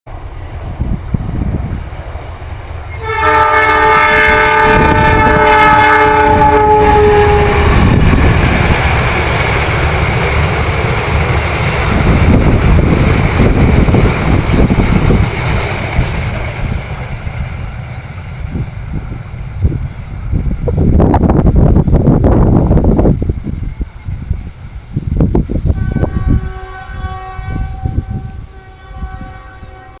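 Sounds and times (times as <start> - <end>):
train rumble and wheel clatter: 0.1 - 30.0
locomotive horn blast: 2.9 - 8.0, 25.7 - 30.0.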